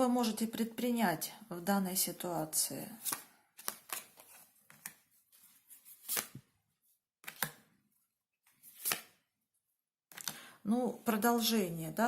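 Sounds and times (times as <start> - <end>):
card slaps on a table: 7.2 - 7.6.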